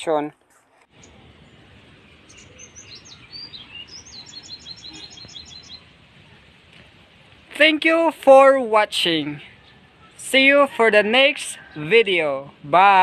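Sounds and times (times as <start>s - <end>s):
small bird chirping: 0.9s - 1.7s, 2.3s - 6.4s
low outdoor hiss: 0.9s - 13.0s.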